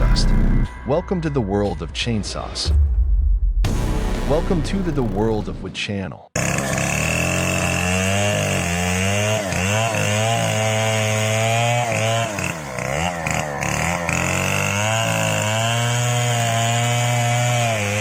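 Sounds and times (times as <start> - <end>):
chainsaw cutting wood: 6.4 - 18.0.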